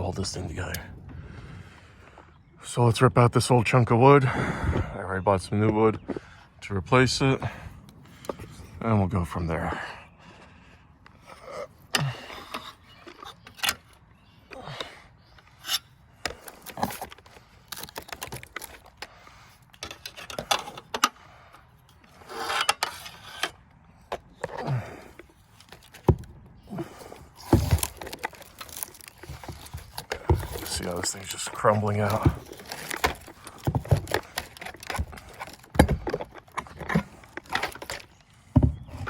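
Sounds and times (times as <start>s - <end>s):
rotted wood cracking and splintering: 16.3s - 19.3s, 24.4s - 38.3s.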